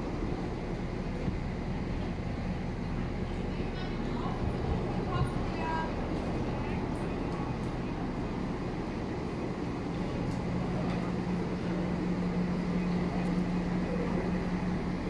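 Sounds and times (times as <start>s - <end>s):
train droning at platform: 0.0s - 15.0s.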